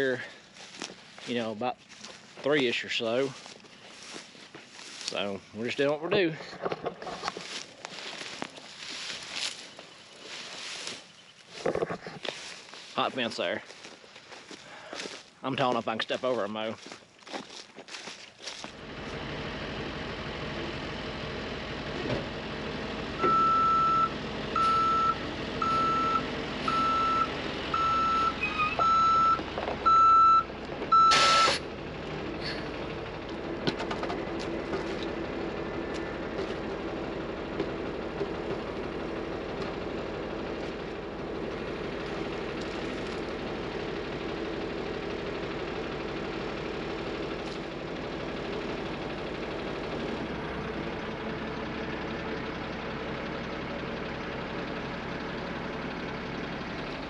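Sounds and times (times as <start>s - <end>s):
truck engine running: 0.0s - 57.0s
backup alarm beeping: 23.2s - 31.6s.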